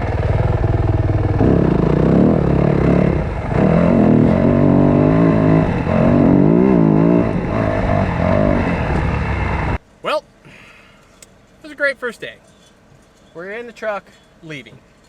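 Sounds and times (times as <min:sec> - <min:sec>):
motocross bike engine revving: 0:00.0 - 0:09.8.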